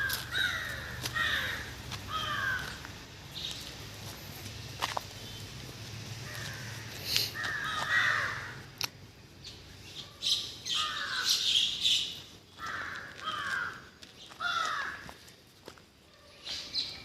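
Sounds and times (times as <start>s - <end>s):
crows cawing: 0.0s - 2.9s, 6.2s - 8.8s, 10.6s - 15.3s.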